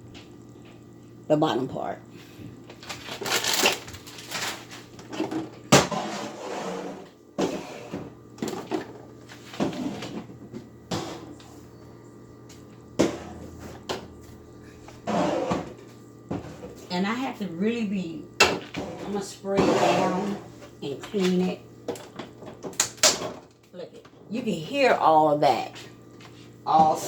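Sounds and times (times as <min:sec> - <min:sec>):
plastic containers clunking and rattling: 0:02.8 - 0:06.4, 0:07.4 - 0:11.4, 0:21.1 - 0:24.2.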